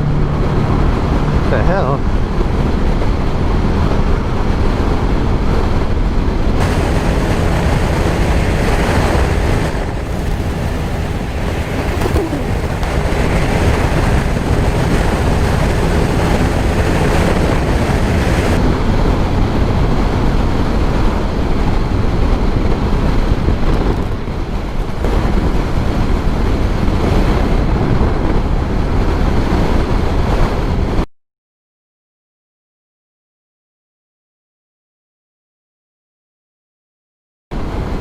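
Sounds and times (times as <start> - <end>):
wind rush on microphone: 0.0 - 31.1, 37.6 - 38.0
motorcycle engine running: 6.6 - 18.6.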